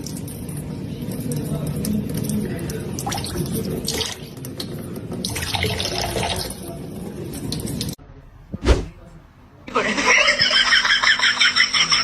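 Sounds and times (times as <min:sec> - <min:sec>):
water running and splashing: 0:00.0 - 0:08.0.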